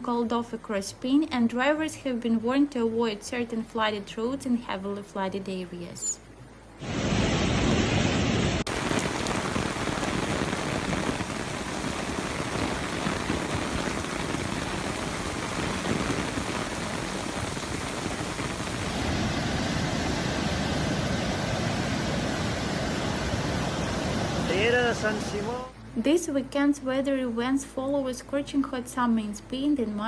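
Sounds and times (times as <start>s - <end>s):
heavy rain pouring: 6.8s - 25.7s.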